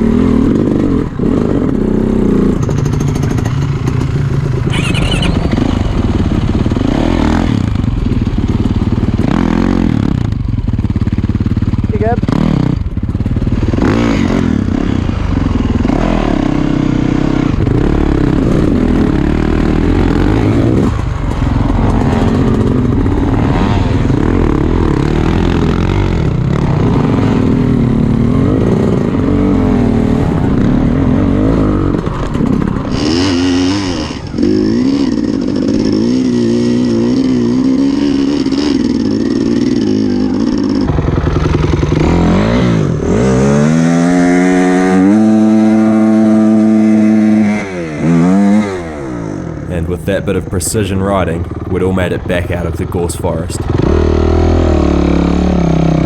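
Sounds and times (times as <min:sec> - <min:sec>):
dirt bike engines revving: 0:00.0 - 0:09.9.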